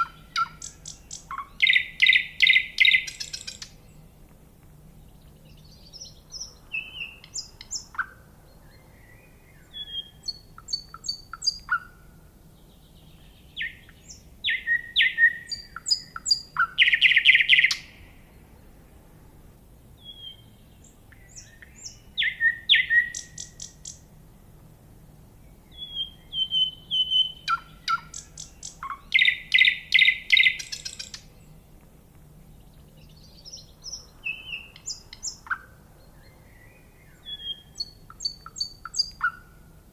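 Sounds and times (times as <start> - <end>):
fast bird trill: 0.0 - 3.7, 21.3 - 24.0, 25.7 - 31.3, 37.3 - 39.5
songbird singing: 0.0 - 39.9.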